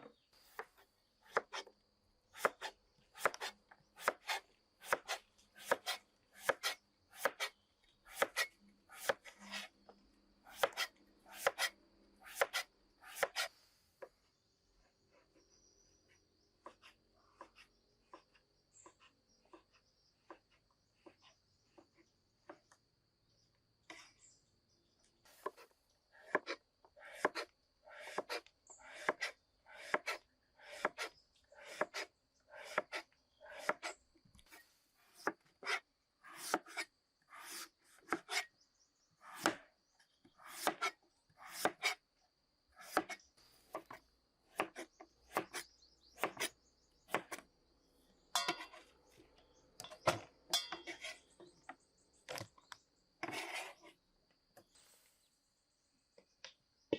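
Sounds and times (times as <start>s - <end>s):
blade chopping on wood: 40.4s - 42.0s.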